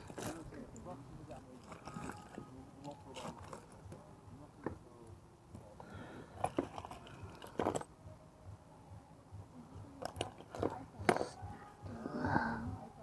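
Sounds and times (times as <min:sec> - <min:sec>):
people talking: 0:00.0 - 0:06.5, 0:09.4 - 0:13.0.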